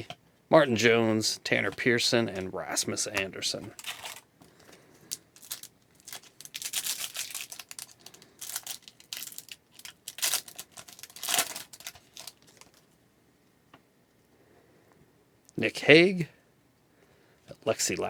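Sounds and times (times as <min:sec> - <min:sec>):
card pack wrapper tearing and crinkling: 0:03.7 - 0:04.2, 0:05.1 - 0:12.8.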